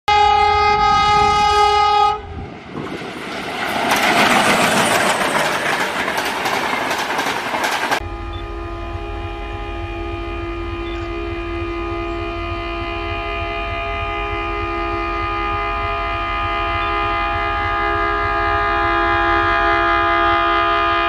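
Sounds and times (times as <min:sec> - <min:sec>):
diesel locomotive horn: 0:00.0 - 0:02.6, 0:08.0 - 0:21.0
train passing at speed: 0:00.1 - 0:21.0
wheel clatter over rail joints: 0:02.6 - 0:08.0.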